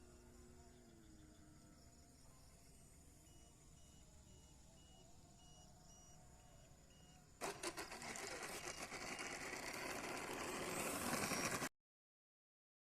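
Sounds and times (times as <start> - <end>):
faint beeping: 2.2 - 7.4
model airplane motor running: 7.4 - 11.7.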